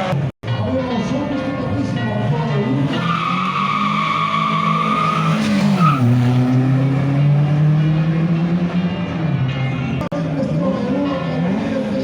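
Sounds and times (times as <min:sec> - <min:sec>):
tyres squealing: 0:02.8 - 0:07.1.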